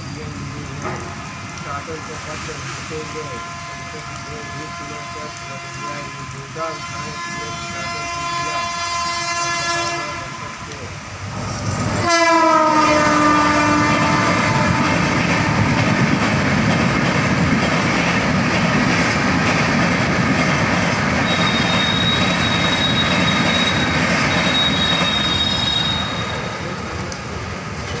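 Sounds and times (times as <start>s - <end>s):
train wheels rumbling on track: 0.0s - 28.0s
high wheel squeal: 21.2s - 26.6s.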